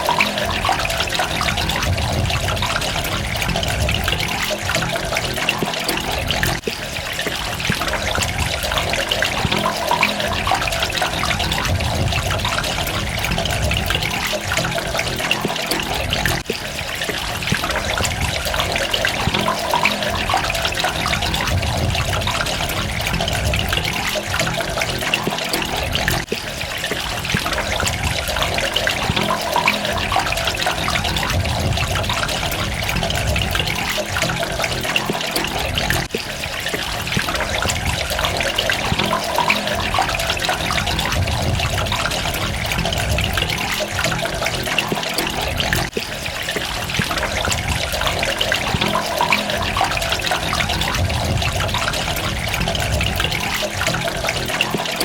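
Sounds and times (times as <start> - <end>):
water running and trickling: 0.0 - 55.0.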